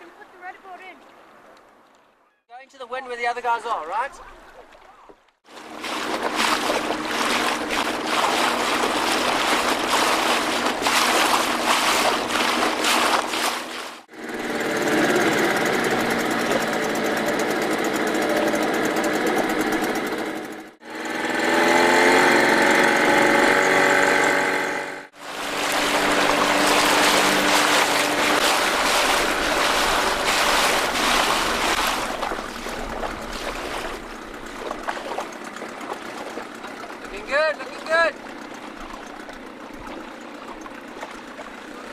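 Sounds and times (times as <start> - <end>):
water rushing and splashing: 5.5 - 14.1, 25.1 - 41.9.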